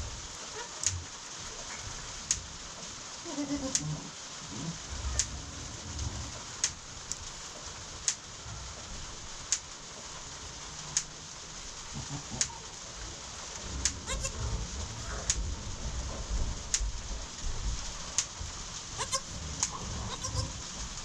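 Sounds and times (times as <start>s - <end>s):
rain hissing: 0.0s - 21.0s.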